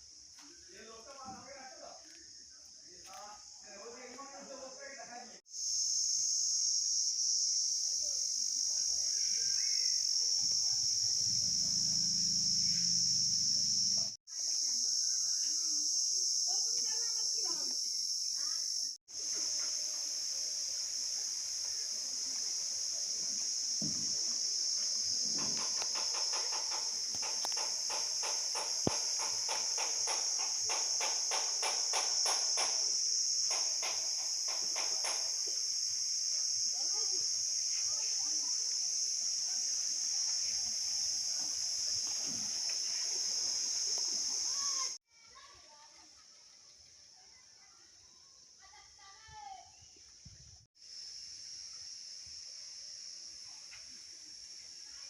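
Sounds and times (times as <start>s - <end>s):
insect chorus droning: 0.0s - 55.0s
rapid ticks: 25.6s - 32.8s.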